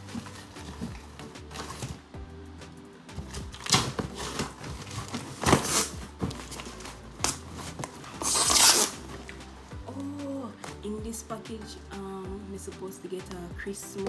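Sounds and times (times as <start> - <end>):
packaging rustling and crinkling: 0.0 - 2.0, 3.2 - 9.4.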